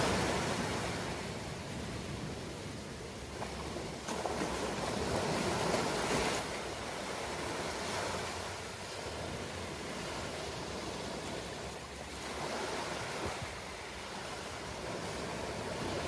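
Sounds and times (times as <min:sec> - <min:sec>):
wave breaking: 0:00.0 - 0:02.3, 0:03.2 - 0:08.6
ocean surf washing ashore: 0:00.0 - 0:16.0.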